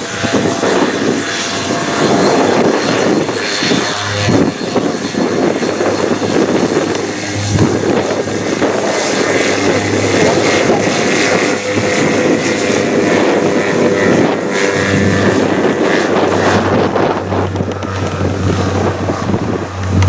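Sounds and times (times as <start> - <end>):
airliner engines running: 0.0 - 20.0.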